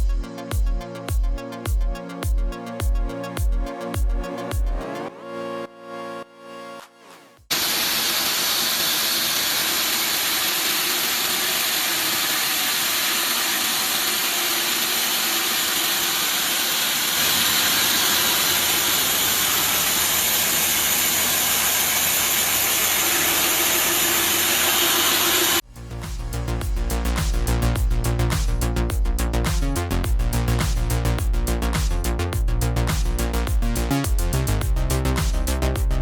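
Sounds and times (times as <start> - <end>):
music: 0.0 - 7.5, 25.6 - 36.0
heavy machinery hissing: 7.5 - 27.8
low hum: 17.2 - 36.0.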